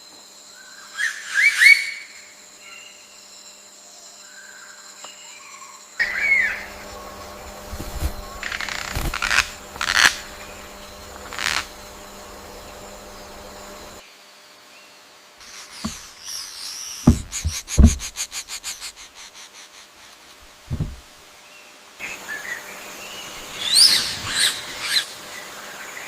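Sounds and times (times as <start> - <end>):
high insect buzz: 6.0 - 14.0, 15.4 - 21.2
short rustling knocks: 6.0 - 14.0, 15.8 - 16.1, 17.0 - 18.9, 20.4 - 21.1.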